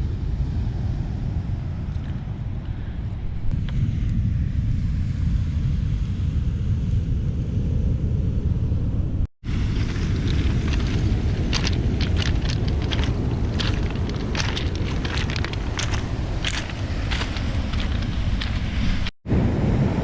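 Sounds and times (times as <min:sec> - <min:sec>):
wind: 0:00.0 - 0:20.0
surf on stone beach: 0:09.4 - 0:20.0
footsteps on pebbles: 0:09.6 - 0:19.2.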